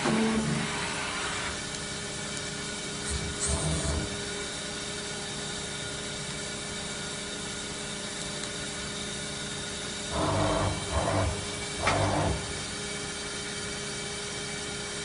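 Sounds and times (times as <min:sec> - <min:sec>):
machining center humming: 0:10.1 - 0:12.9.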